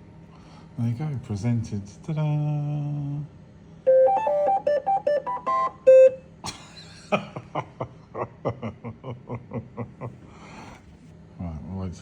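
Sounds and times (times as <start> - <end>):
printer beeping tune: 3.9 - 6.2.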